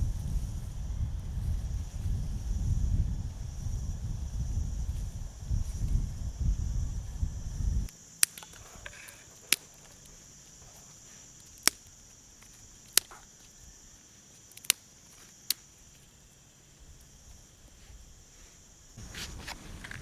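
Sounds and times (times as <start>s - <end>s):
low rumble: 0.0s - 7.9s
steady high-pitched hiss: 0.0s - 20.0s.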